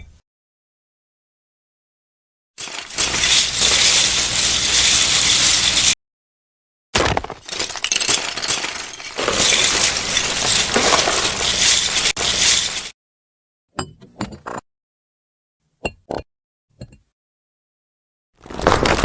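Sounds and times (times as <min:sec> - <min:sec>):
pieces clinking and breaking: 0:02.6 - 0:06.0, 0:07.0 - 0:12.9.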